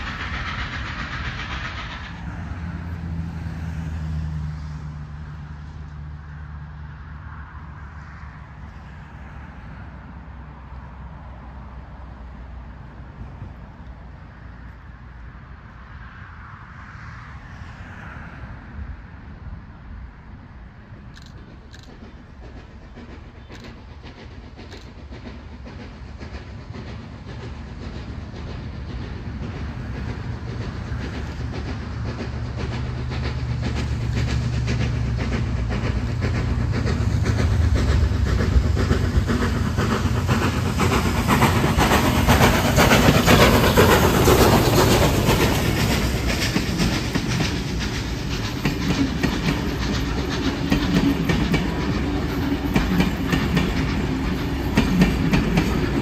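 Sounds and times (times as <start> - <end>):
train passing: 0.0 - 56.0
wheels clattering over rail joints: 21.2 - 56.0.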